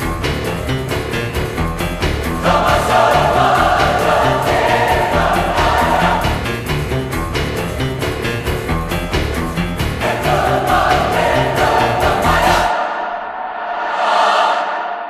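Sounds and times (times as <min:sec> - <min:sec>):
background music with steady beat: 0:00.0 - 0:12.8
choir singing: 0:02.4 - 0:06.6, 0:10.0 - 0:15.0.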